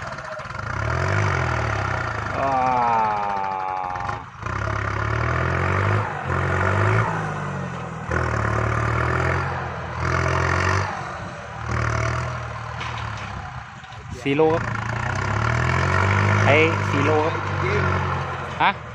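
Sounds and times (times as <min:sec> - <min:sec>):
clatter: 0:00.0 - 0:02.4, 0:11.6 - 0:18.9
tractor diesel engine under load: 0:00.0 - 0:18.9.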